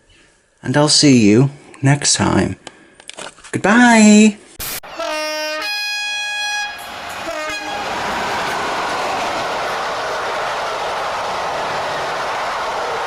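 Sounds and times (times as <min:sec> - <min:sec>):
train horn: 0:04.9 - 0:10.2
train running along track: 0:04.9 - 0:13.0.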